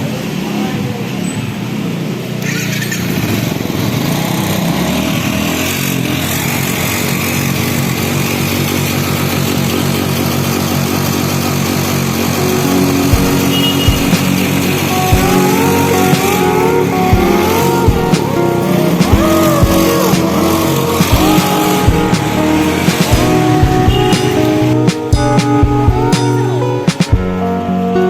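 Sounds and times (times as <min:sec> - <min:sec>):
small engine running: 0:02.4 - 0:24.7
low thumps: 0:21.0 - 0:26.3.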